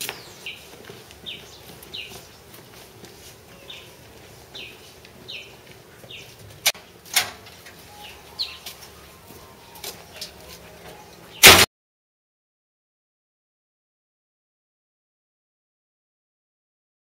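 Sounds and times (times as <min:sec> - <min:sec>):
bird chirping: 0:00.0 - 0:02.6, 0:03.6 - 0:06.4, 0:07.7 - 0:11.5
metal gate latch clacks: 0:07.1 - 0:07.4.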